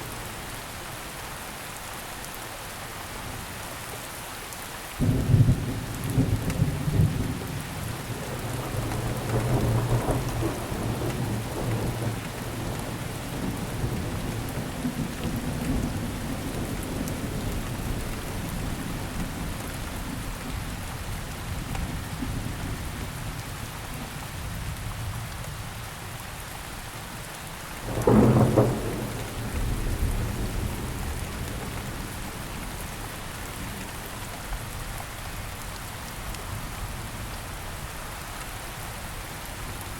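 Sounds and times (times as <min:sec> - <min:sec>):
rain pattering: 0:00.0 - 0:39.9
thunder rumbling: 0:27.8 - 0:32.8
sharp thunderclap: 0:27.9 - 0:31.9.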